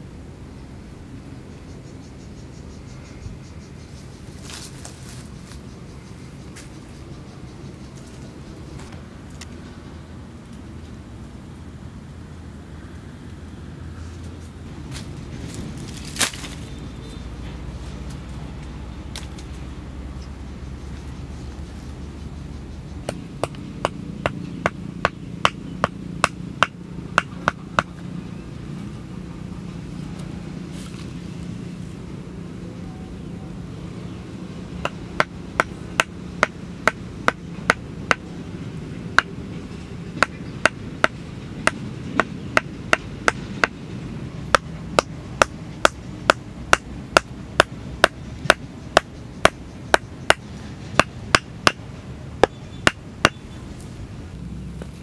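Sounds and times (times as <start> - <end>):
steady low hum: 0.0 - 55.0
wooden club knocking stakes: 23.0 - 28.0, 34.8 - 38.2, 40.2 - 43.8, 44.5 - 51.8.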